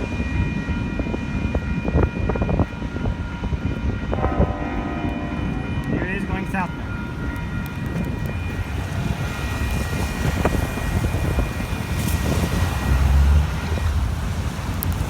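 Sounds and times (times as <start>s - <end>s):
freight train rumbling past: 0.0s - 15.0s
high-pitched tones: 4.2s - 8.6s.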